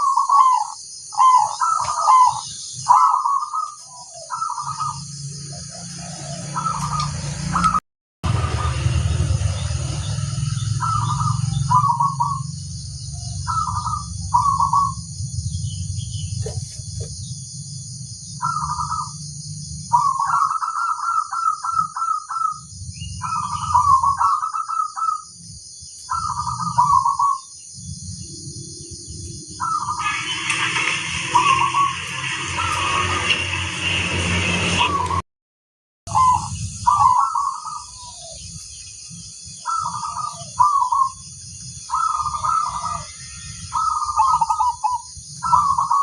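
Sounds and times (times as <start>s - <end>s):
dove cooing: 0.0s - 7.8s, 10.8s - 12.5s, 13.1s - 15.0s, 16.4s - 17.2s, 18.4s - 19.2s, 19.9s - 22.6s, 23.2s - 25.2s, 26.1s - 27.5s, 29.6s - 30.6s, 36.1s - 38.5s, 39.6s - 41.2s, 41.9s - 46.0s
low steady rumble: 5.0s - 20.1s.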